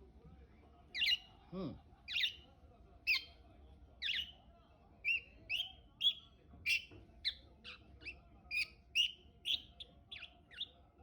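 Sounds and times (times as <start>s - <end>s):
budgerigar chirping: 1.0s - 1.3s, 2.1s - 2.4s, 3.1s - 3.3s, 4.0s - 4.4s, 5.0s - 10.8s.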